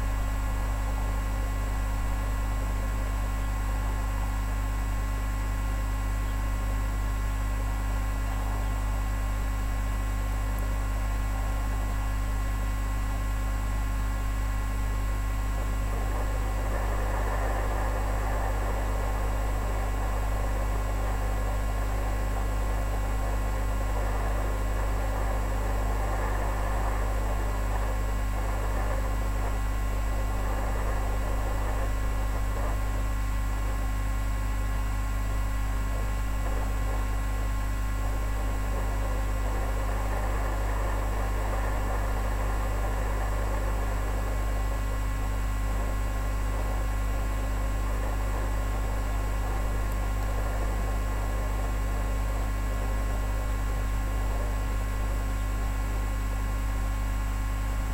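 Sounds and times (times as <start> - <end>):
electrical mains hum: 0.0 - 57.9
constant hiss: 15.2 - 34.8, 35.5 - 56.1.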